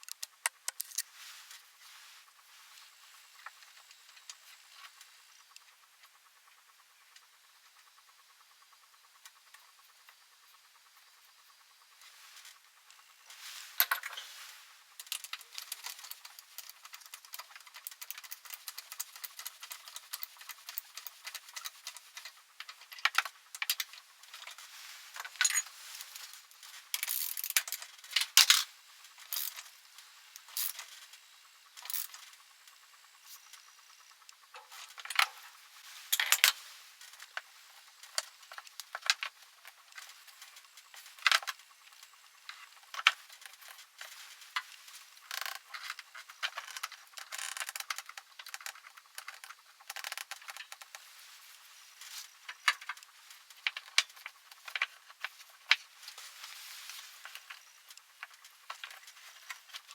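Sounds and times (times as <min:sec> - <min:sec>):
small hard objects clicking: 0:00.0 - 0:01.1, 0:15.0 - 0:24.6, 0:26.9 - 0:28.7, 0:29.3 - 0:29.6.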